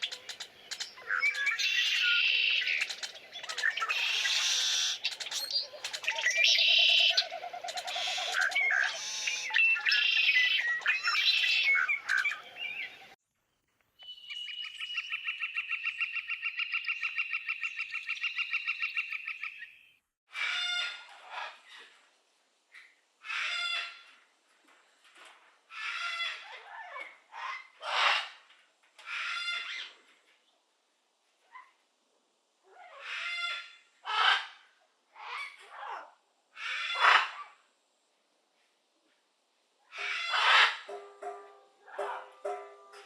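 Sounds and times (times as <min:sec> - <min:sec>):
bird trilling: 0:00.0 - 0:13.2
songbirds chirping in chorus: 0:00.0 - 0:20.0.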